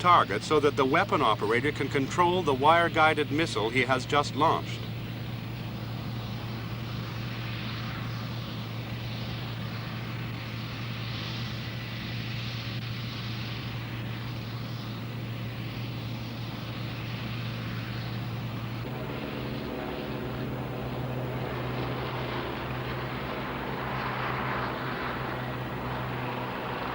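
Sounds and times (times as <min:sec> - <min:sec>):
steady tones: 0:00.0 - 0:06.8, 0:18.1 - 0:26.9
helicopter turbine and rotor drone: 0:00.0 - 0:26.9.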